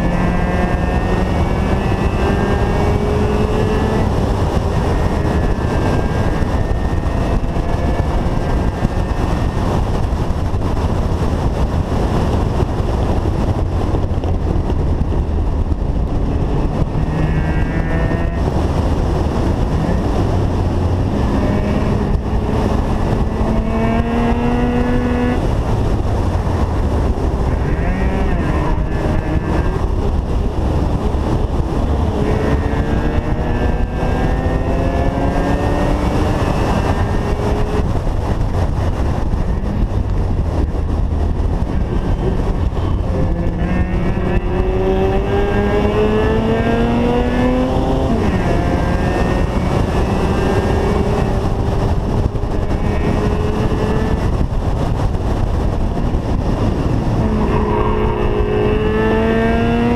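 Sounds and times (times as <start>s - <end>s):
rotary engine revving hard: 0.0s - 9.7s, 16.4s - 25.5s, 27.4s - 38.0s, 41.5s - 54.4s, 56.0s - 59.9s
wind and road noise: 0.0s - 59.9s.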